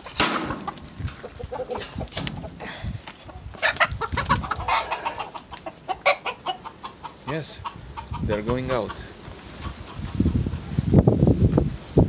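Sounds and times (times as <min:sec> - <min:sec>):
chickens clucking: 0:00.0 - 0:10.6.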